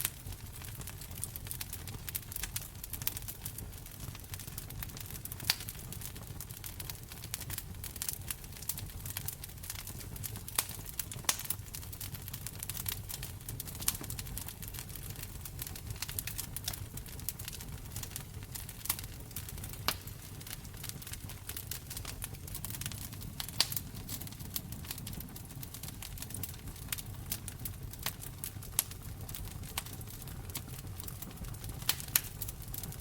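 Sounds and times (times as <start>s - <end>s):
low rumble of flames: 0.0s - 33.0s
sharp pops from fire: 0.0s - 33.0s
wood fire crackling: 0.0s - 33.0s.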